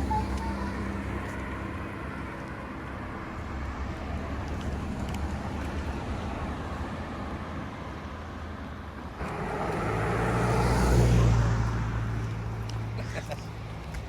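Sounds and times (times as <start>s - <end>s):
motor vehicle passing by: 9.2s - 14.0s.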